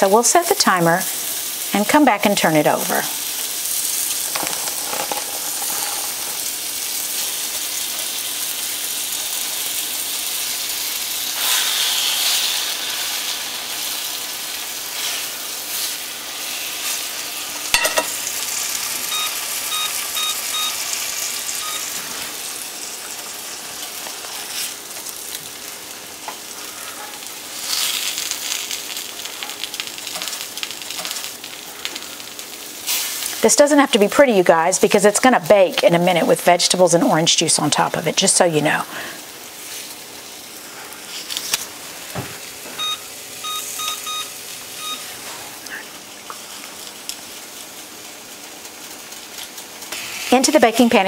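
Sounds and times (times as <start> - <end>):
chicken sizzling in oil: 0.0 - 51.0
electronic beeps: 19.1 - 20.8, 21.6 - 21.9, 42.8 - 45.0.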